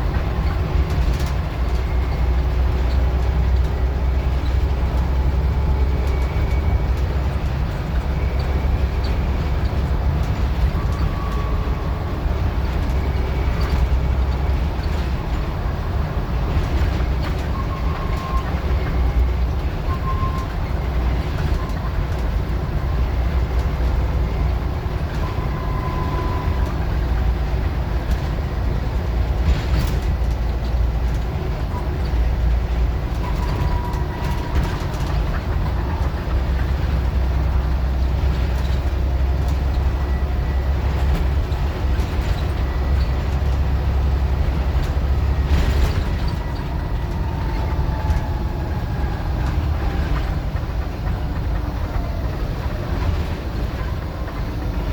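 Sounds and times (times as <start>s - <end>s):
bus engine drone: 0.0s - 54.9s.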